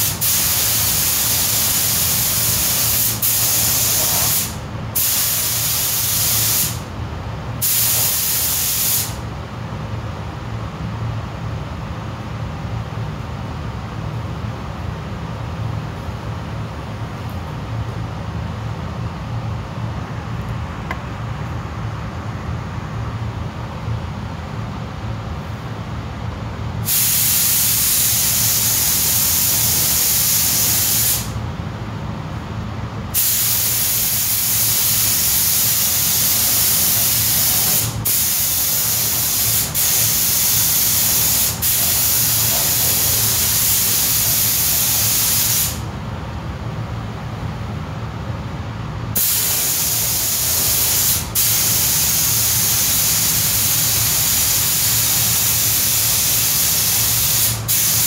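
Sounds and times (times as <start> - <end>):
spray gun hissing: 0.0 - 6.8, 7.6 - 9.2, 26.8 - 31.4, 33.2 - 45.9, 49.2 - 58.0
steady low hum: 0.0 - 58.0.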